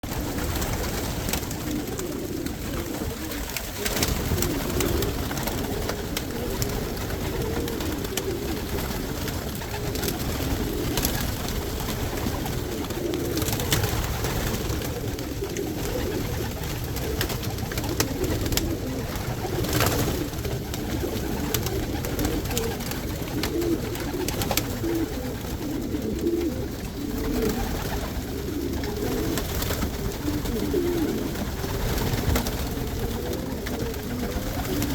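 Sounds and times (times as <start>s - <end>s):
pigeons cooing: 0.0s - 34.9s.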